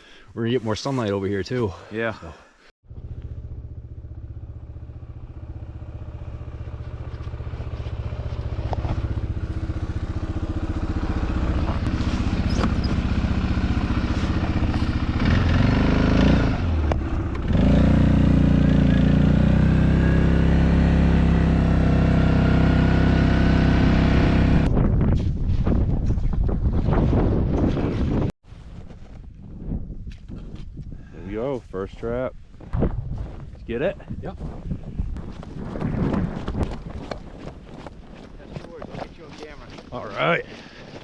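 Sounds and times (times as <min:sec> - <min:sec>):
small engine running: 0:02.9 - 0:24.7.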